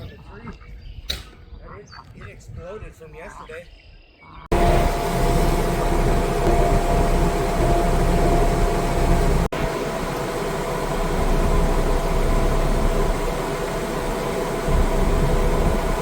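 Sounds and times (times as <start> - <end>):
engine running steadily: 4.5 - 16.0.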